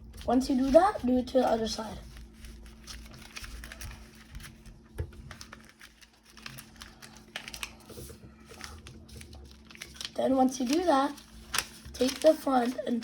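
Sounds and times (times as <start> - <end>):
paper being folded: 0.0 - 13.0.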